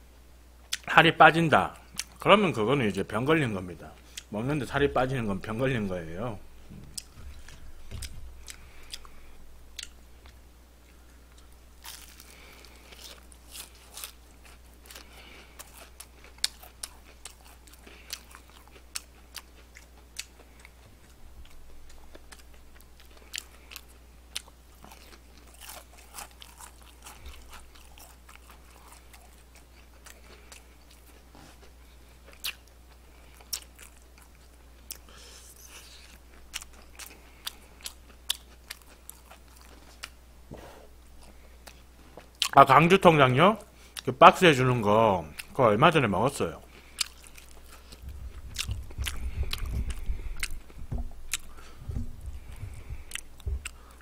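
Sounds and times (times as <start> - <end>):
low hum: 3.1 - 25.2, 46.6 - 54.0
crunchy chewing: 5.0 - 42.6, 46.3 - 54.0.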